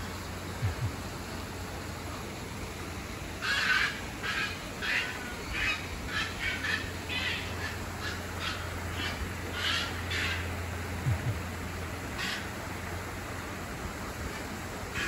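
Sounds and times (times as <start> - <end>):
steady low hum: 0.0 - 15.0
birds giving raspy calls: 3.4 - 11.5, 12.1 - 12.6.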